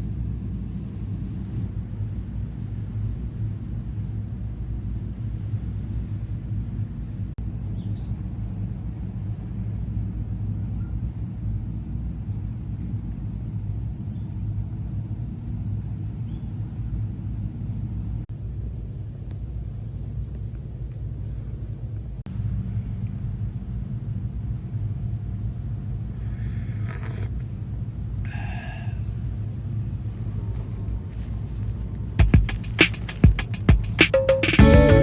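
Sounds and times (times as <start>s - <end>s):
music with sharp percussive strikes: 32.2s - 35.0s.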